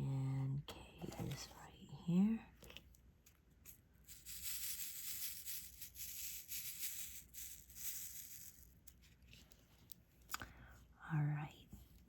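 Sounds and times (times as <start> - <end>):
plastic beads rattling in a tray: 3.6 - 9.0.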